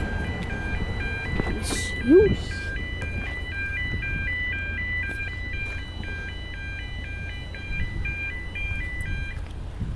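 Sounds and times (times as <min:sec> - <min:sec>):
two-tone electronic warning alarm: 0:00.0 - 0:09.6
steady low rumble: 0:00.0 - 0:09.9.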